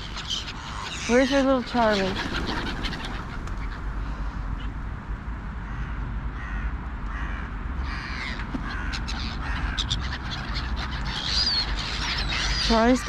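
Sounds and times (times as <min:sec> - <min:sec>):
crows cawing: 0:00.0 - 0:04.7, 0:05.6 - 0:13.0.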